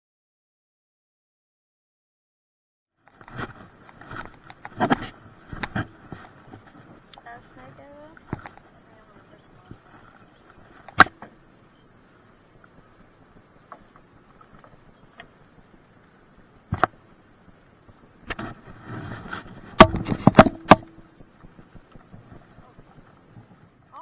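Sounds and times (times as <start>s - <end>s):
sharp knocks and thumps: 16.7s - 17.0s, 17.9s - 22.8s.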